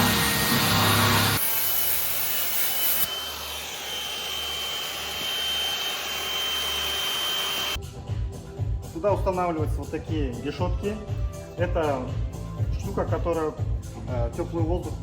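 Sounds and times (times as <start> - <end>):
power tool cutting tile: 0.0 - 7.8.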